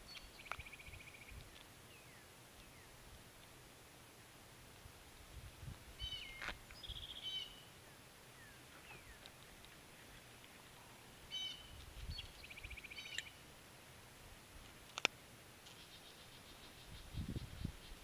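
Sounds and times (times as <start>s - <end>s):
songbird singing with trill: 0.0s - 3.0s, 6.0s - 10.3s, 11.3s - 13.4s, 15.7s - 18.0s.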